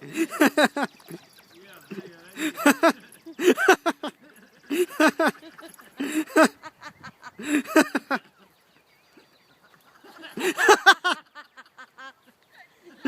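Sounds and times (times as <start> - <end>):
people laughing hard: 0.0 - 8.6, 9.7 - 13.0.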